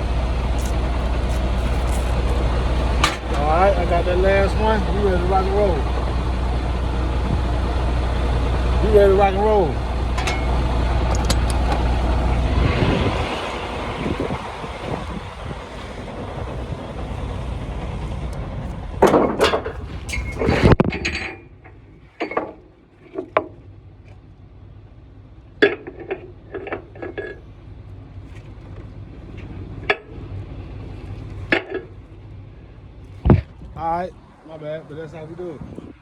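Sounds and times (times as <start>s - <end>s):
wind noise on microphone: 7.2s - 7.6s, 11.0s - 17.2s, 19.8s - 21.2s, 33.2s - 34.0s, 35.4s - 36.0s.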